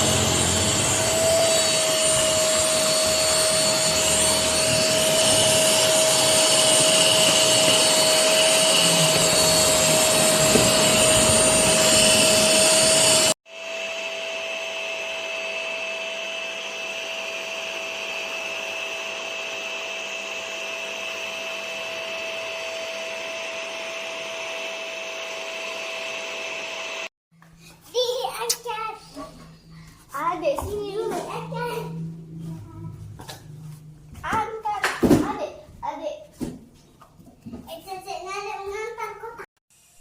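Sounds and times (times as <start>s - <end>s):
vacuum cleaner motor whining: 0.0s - 27.1s.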